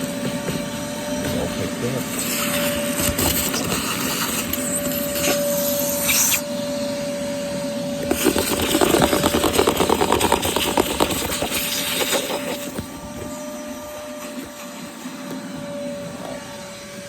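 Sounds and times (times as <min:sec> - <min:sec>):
vacuum cleaner whining: 0:00.0 - 0:17.0
debris rattling up hose: 0:08.0 - 0:14.7.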